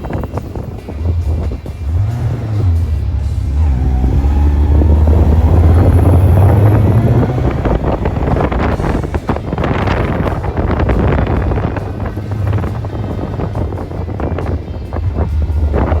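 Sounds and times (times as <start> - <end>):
motorcycle engine accelerating: 0.0 - 16.0
wind buffeting microphone: 0.0 - 16.0.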